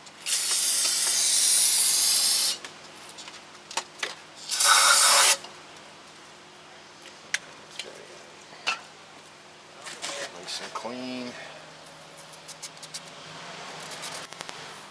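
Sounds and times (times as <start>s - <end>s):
aerosol can spraying: 0.3s - 2.6s, 4.6s - 5.4s.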